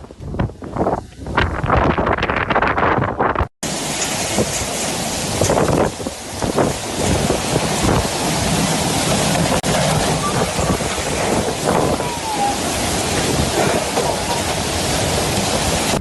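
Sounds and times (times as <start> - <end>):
storm wind buffeting microphone: 0.0 - 16.0
rain or surf: 3.6 - 16.0
faint voices: 9.7 - 14.6.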